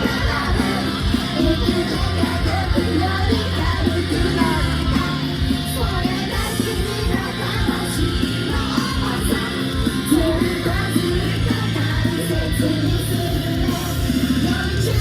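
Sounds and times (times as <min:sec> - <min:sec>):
distorted electric guitars: 0:00.0 - 0:15.0
person singing: 0:00.0 - 0:15.0
rock song over speakers: 0:00.0 - 0:15.0
steady drum beat: 0:00.0 - 0:15.0.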